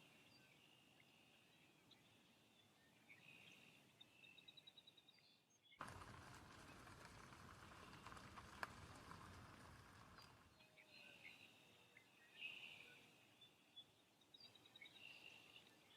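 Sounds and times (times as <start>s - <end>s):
rushing noise with low rumble: 5.8s - 10.6s.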